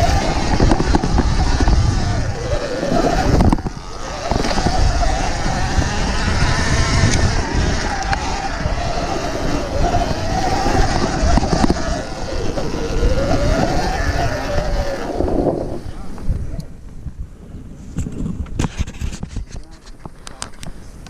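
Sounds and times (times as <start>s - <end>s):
electric motor whine: 0.0s - 16.2s
rumble and knocks of bumpy ride: 0.0s - 16.4s.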